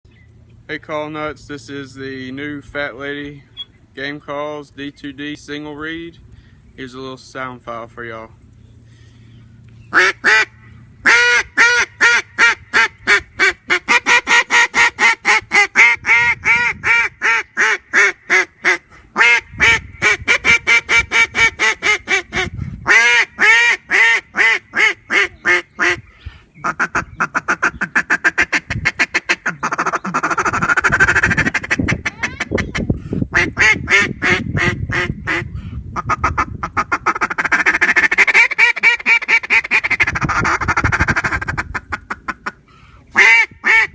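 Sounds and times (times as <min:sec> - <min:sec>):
duck call quacking: 0:09.9 - 0:26.0, 0:26.6 - 0:43.9.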